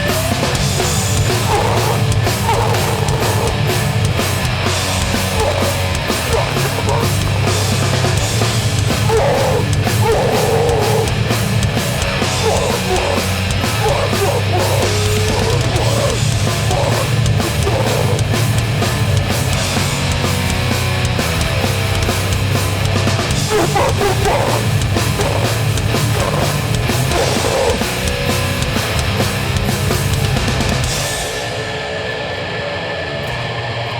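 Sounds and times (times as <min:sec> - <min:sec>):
pounding drums: 0:00.0 - 0:31.6
hardcore band playing live: 0:00.0 - 0:32.1
distorted guitars: 0:00.0 - 0:33.9.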